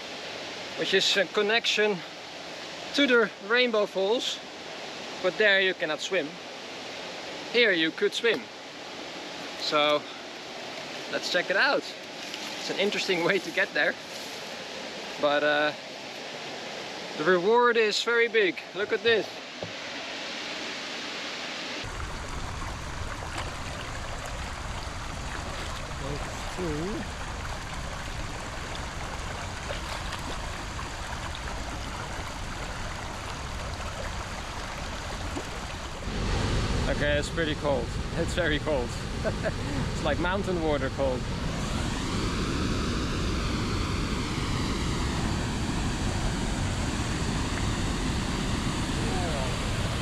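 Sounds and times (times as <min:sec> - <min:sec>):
waterfall rushing: 0:18.8 - 0:37.7, 0:43.9 - 0:50.0.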